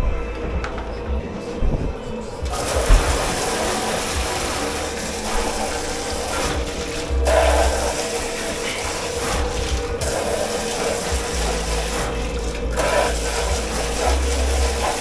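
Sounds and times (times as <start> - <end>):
steady machine hum: 0.0 - 15.0
scrubbing pots: 0.9 - 15.0
running water in sink: 1.9 - 15.0.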